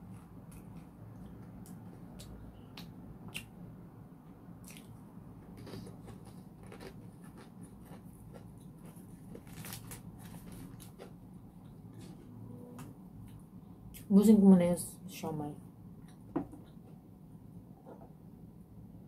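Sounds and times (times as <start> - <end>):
person chewing crunchy food: 4.6 - 11.8.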